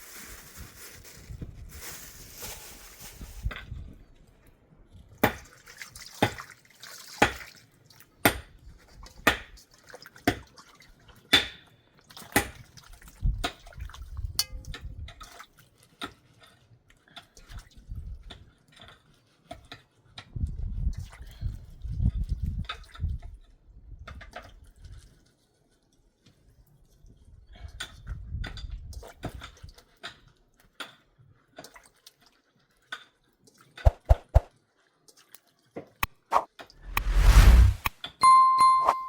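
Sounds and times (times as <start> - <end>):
low rumble: 36.8 - 37.9.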